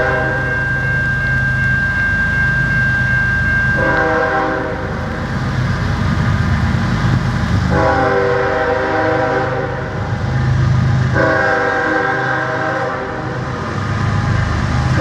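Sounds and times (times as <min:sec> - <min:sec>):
locomotive air horn blasts: 0:00.0 - 0:06.0, 0:07.6 - 0:10.1, 0:11.1 - 0:13.4
locomotive diesel engine running: 0:00.0 - 0:15.0.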